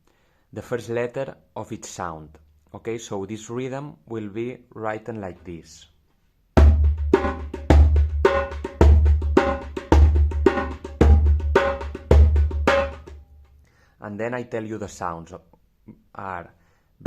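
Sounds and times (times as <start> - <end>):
djembe rhythm: 6.6 - 13.2.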